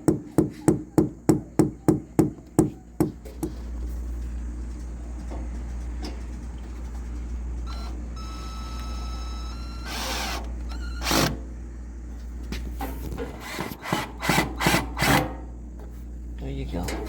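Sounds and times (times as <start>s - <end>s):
cordless drill whine: 7.7s - 11.4s.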